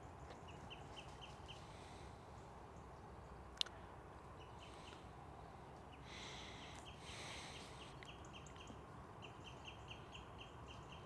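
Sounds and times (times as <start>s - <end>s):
small bird chirping: 6.6s - 11.0s.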